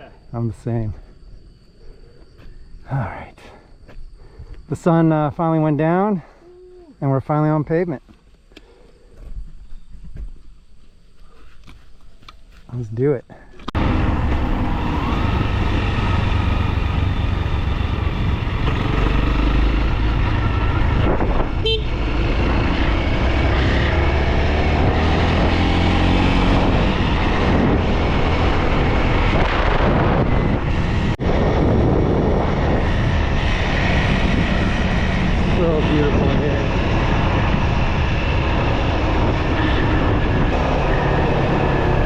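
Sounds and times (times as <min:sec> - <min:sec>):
motorcycle engine revving: 0:13.8 - 0:42.0
horn toot: 0:21.5 - 0:22.2.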